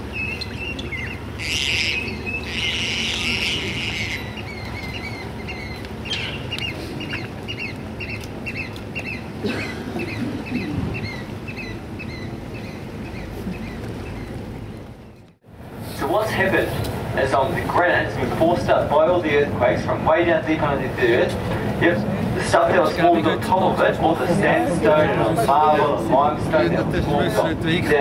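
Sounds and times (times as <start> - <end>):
harsh bird calls: 0.0 - 15.2
birds chirping: 0.0 - 15.4
steady low rumble: 0.0 - 28.0.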